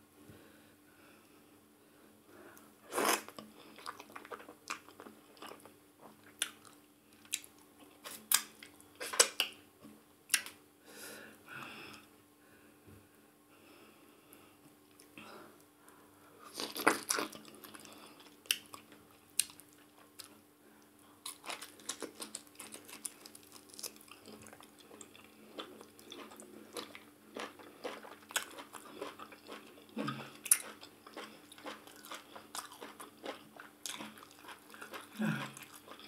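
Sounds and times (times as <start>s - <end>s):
chewing and mouth smacking: 21.2s - 36.0s.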